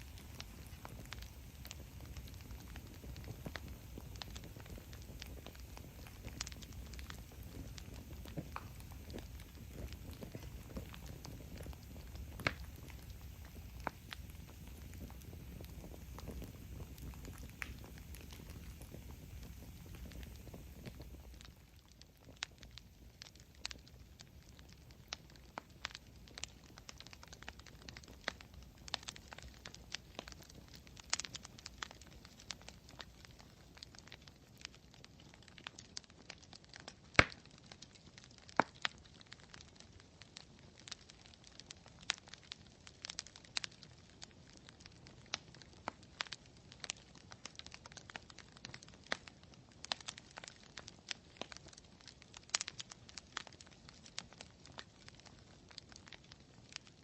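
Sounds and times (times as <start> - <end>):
campfire wood crackling and popping: 0.0 - 57.0
faint steady hiss: 0.0 - 57.0.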